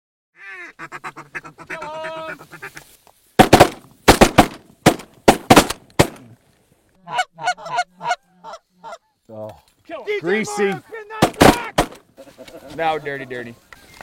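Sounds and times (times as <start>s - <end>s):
geese honking: 0.4s - 3.0s, 7.0s - 9.2s
shotgun blasts: 3.4s - 6.3s.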